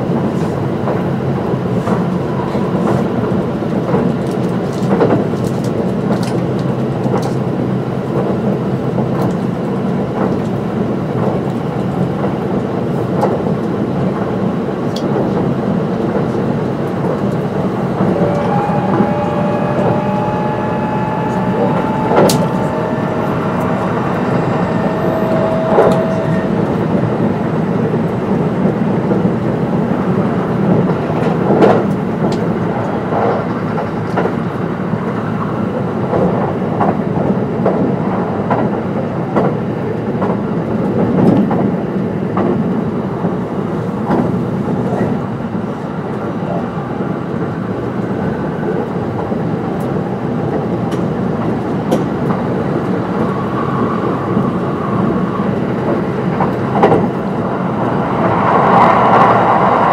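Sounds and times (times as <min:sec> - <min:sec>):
electric train rolling rumble: 0:00.0 - 0:59.9
faint steady whine: 0:18.2 - 0:27.6.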